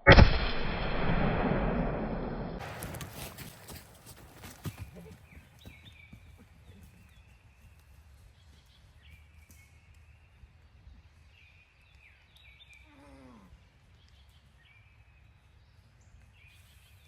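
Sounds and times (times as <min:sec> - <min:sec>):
steady low rumble: 0:00.0 - 0:03.2
bird chirping: 0:04.4 - 0:13.0.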